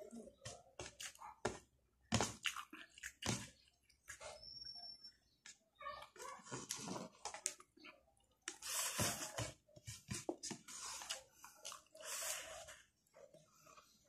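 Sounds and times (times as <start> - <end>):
man chewing food: 0.0 - 4.5, 6.6 - 14.0.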